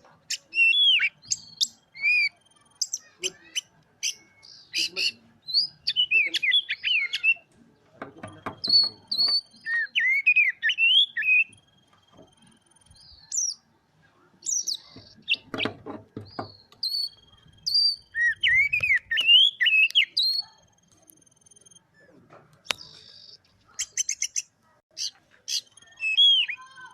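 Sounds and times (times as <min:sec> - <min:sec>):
bird singing whistled notes: 0:00.3 - 0:07.5, 0:08.5 - 0:13.6, 0:14.4 - 0:20.6, 0:25.5 - 0:26.9
harsh clicking bird notes: 0:00.3 - 0:13.6, 0:14.4 - 0:21.7.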